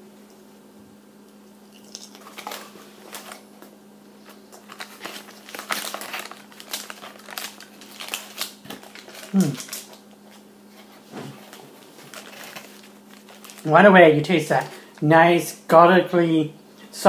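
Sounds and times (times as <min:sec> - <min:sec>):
faint electrical hum: 0:00.0 - 0:17.0
crunchy chewing: 0:01.3 - 0:10.4.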